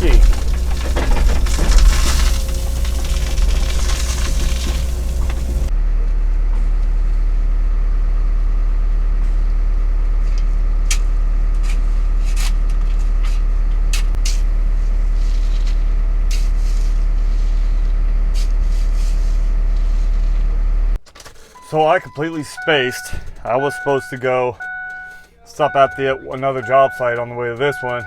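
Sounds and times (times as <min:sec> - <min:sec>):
excavator diesel engine running: 0:00.0 - 0:05.7, 0:22.6 - 0:28.0
sharp clicks and ticks: 0:22.5 - 0:28.0.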